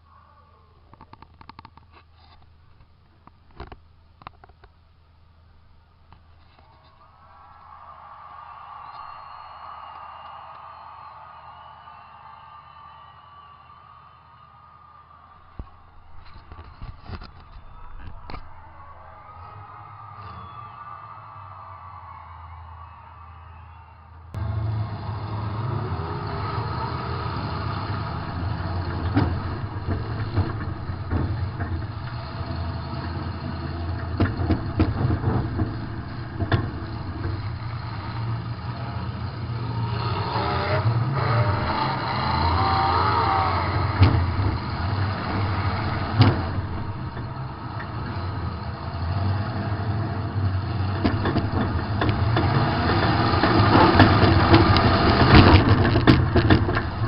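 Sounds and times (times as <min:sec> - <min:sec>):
car engine revving: 0:24.3 - 0:57.0.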